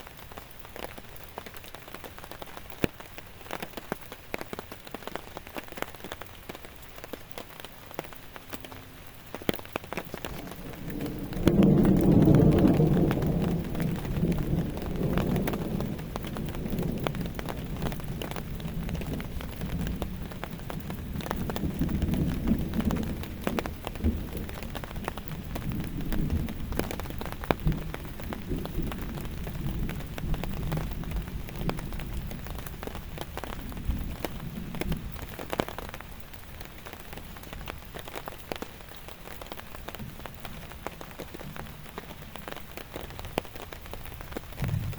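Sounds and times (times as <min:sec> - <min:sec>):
heavy rain: 0:00.0 - 0:44.9
rolling thunder rumble: 0:08.6 - 0:38.0, 0:39.8 - 0:44.9.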